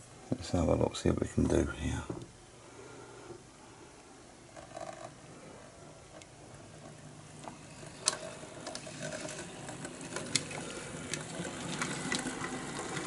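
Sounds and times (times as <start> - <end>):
model train motor whirring: 7.4 - 13.0.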